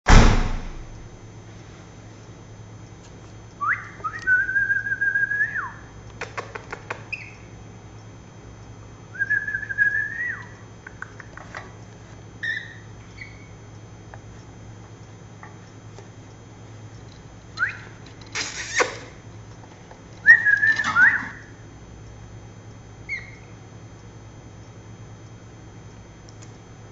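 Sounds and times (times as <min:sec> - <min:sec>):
steady low hum: 0:00.1 - 0:26.9
parrot whistling: 0:03.6 - 0:05.8, 0:07.1 - 0:07.5, 0:09.2 - 0:10.6, 0:12.4 - 0:13.5, 0:17.6 - 0:18.9, 0:20.2 - 0:21.5, 0:23.1 - 0:23.5.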